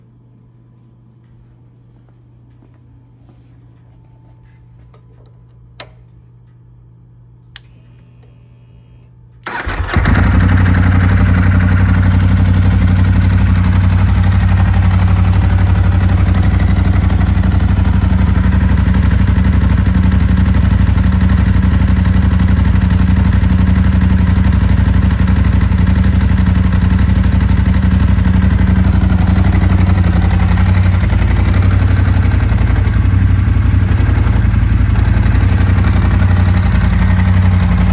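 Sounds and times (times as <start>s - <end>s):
starter motor cranking: 9.4s - 10.3s
motorcycle engine idling: 9.5s - 37.9s.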